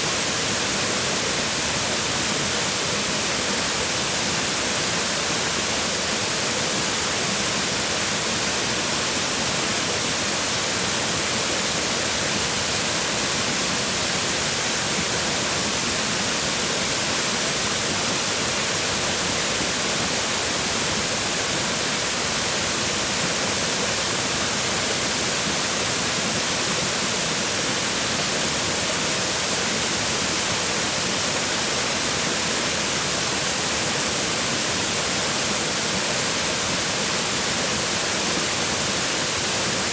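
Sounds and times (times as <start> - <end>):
waterfall splashing on rocks: 0.0 - 39.9.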